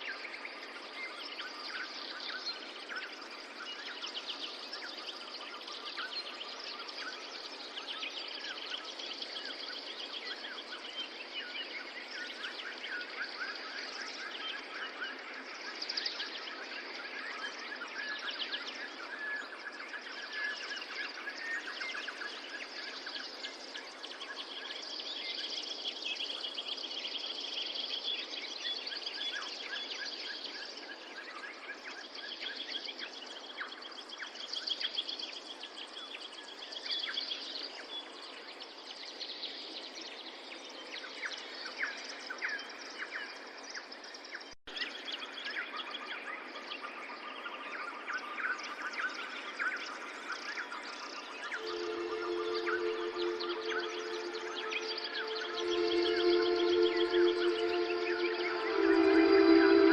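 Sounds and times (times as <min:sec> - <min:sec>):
songbirds chirping and trilling: 0:00.0 - 0:59.9
background hiss: 0:48.8 - 0:59.9.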